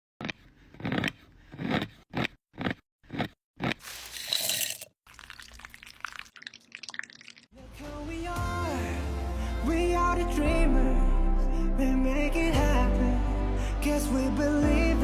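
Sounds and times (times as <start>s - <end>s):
crunching strokes: 0.2s - 5.6s.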